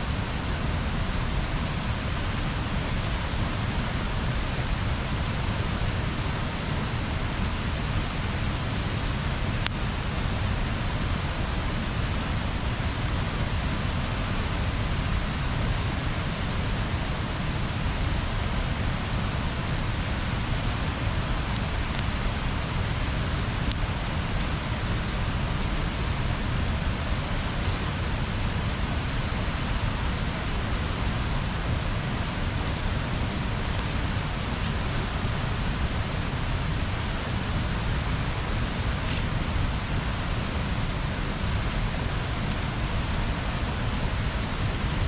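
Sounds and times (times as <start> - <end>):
bonfire hissing: 0.0 - 45.0
fire crackling and popping: 12.4 - 44.8.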